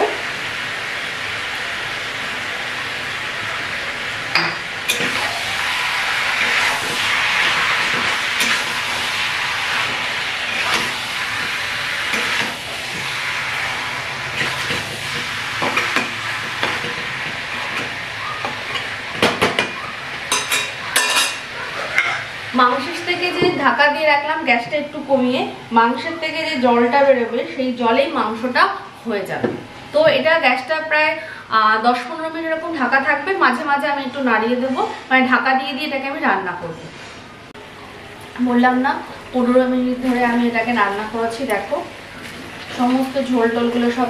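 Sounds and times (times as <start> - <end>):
chicken sizzling in oil: 0.0 - 24.0
spatula scraping a wok: 6.3 - 18.0.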